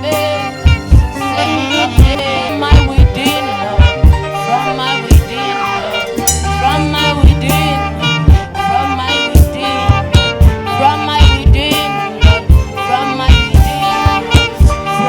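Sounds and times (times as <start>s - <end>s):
live band playing: 0.0s - 15.0s
kick drum beat: 9.4s - 14.9s.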